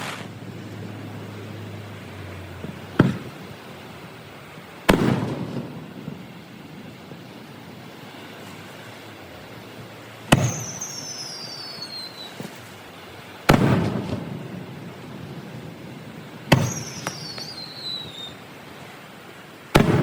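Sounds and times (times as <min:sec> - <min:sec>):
fireworks booming: 0:00.0 - 0:01.6, 0:02.5 - 0:08.8, 0:10.2 - 0:12.8, 0:13.4 - 0:18.4, 0:19.7 - 0:20.0
high falling whistle: 0:10.4 - 0:12.4, 0:16.6 - 0:18.4.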